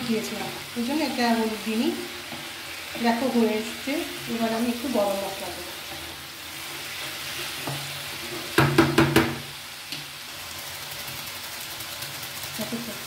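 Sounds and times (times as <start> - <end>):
food sizzling in a pan: 0.0 - 13.0
spatula knocking on pan: 8.5 - 9.5.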